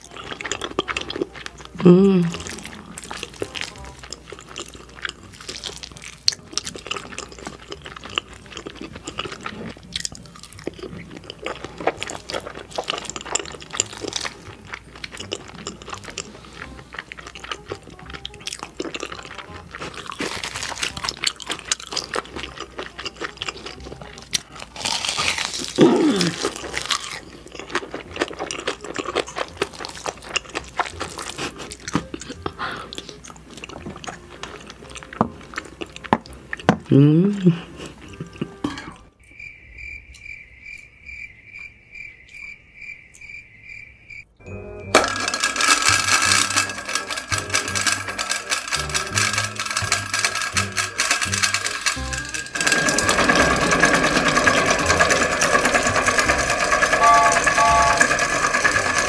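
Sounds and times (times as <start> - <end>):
person chewing and smacking: 0.0 - 36.9
metal spoon scraping foil tray: 18.9 - 26.9, 45.1 - 59.0
breathy sound: 32.2 - 33.2.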